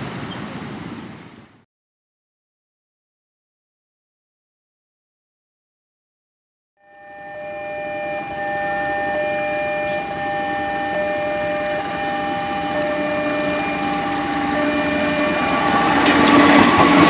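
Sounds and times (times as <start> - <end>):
steady held tones: 6.8 - 17.0
train approaching: 6.9 - 17.0.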